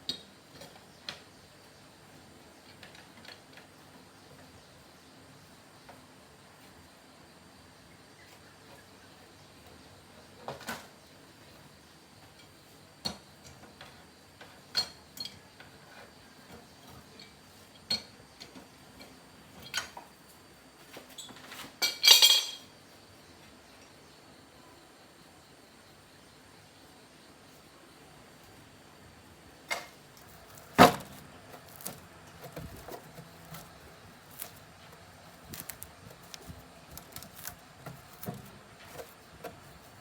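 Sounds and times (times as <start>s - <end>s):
metal tools clinking: 21.8s - 22.7s.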